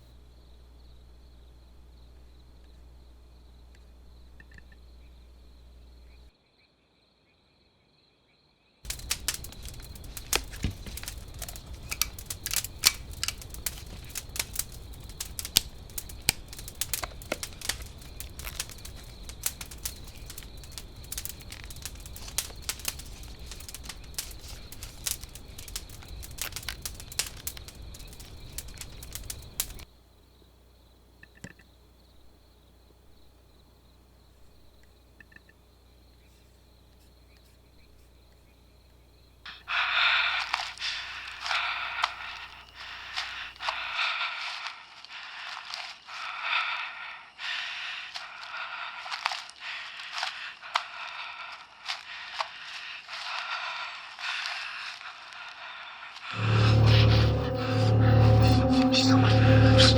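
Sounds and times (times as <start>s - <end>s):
outdoor ambience: 0.0s - 59.9s
crackling and popping: 8.9s - 30.5s, 37.3s - 44.7s, 49.0s - 55.5s, 56.2s - 59.9s
steady hiss: 8.9s - 31.2s, 36.1s - 59.9s.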